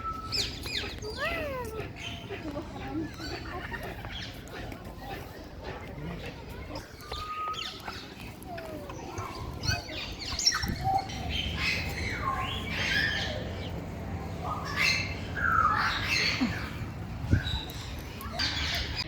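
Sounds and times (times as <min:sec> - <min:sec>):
birds squawking and chirping: 0:00.0 - 0:05.5, 0:06.2 - 0:19.0
low background hum: 0:07.3 - 0:19.0.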